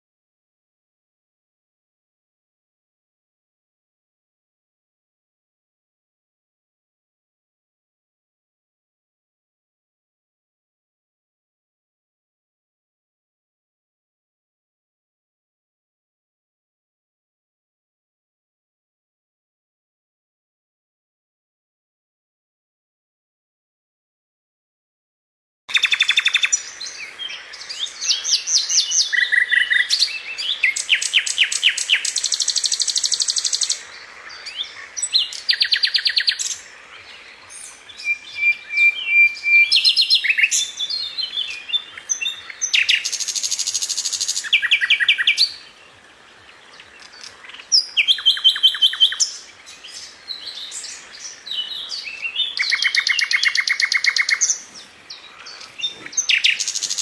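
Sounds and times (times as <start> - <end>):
songbirds singing: 25.7 - 57.0.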